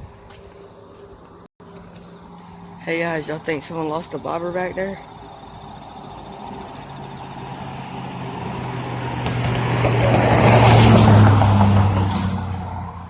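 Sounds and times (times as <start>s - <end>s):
vehicle passing by: 4.7s - 13.0s.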